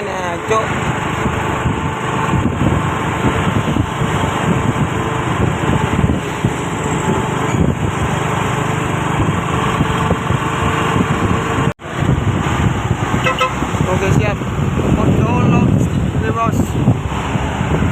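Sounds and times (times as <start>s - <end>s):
diesel truck engine running: 0.0s - 17.9s.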